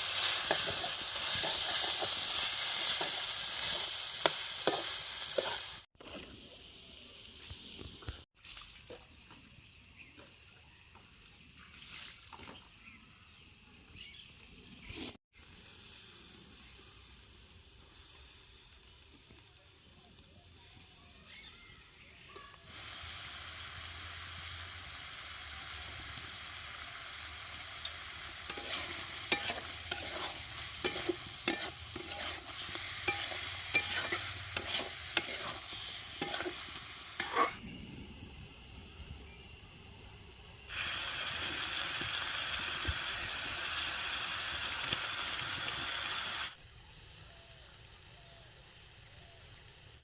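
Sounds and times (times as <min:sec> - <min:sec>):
loud steady sizzle: 0:00.0 - 0:05.9, 0:12.8 - 0:50.0
food sizzling: 0:00.0 - 0:08.3, 0:12.8 - 0:50.0
utensil scraping a pan: 0:28.5 - 0:37.6.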